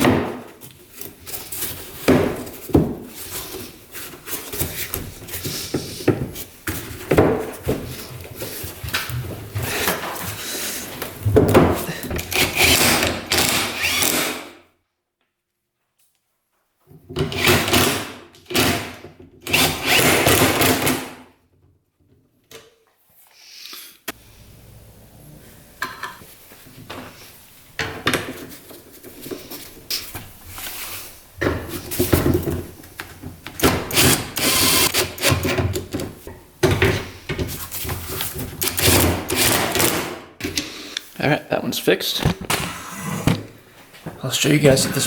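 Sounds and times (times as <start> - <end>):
power drill driving screws: 12.2 - 14.6, 17.3 - 21.1, 33.6 - 35.5, 38.6 - 40.0.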